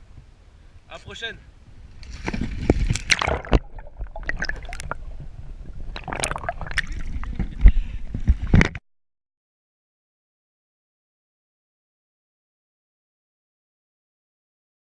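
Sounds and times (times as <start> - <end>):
water splashing and gurgling: 1.9 - 8.8.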